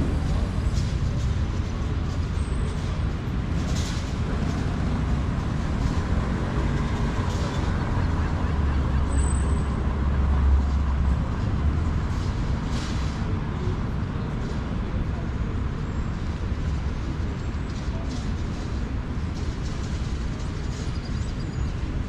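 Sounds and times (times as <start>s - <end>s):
deeper engine rumble: 0.0s - 22.0s
passing vehicles rumble: 0.0s - 22.0s.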